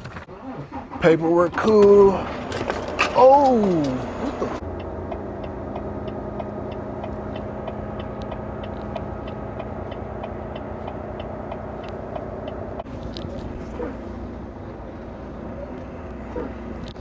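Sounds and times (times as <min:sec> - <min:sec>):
diesel truck engine idling: 0:00.2 - 0:17.0
light ticking: 0:03.5 - 0:13.5.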